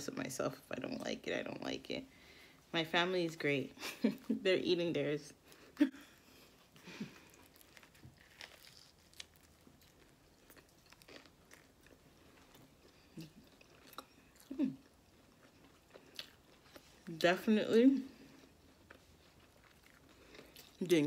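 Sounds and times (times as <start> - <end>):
person chewing: 5.5 - 17.1, 18.2 - 21.0.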